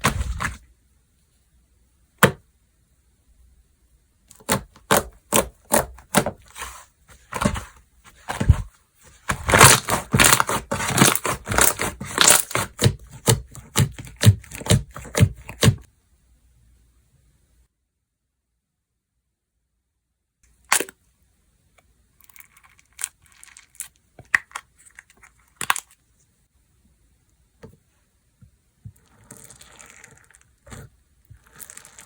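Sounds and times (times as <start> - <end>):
slime popping and crackling: 9.4 - 14.8.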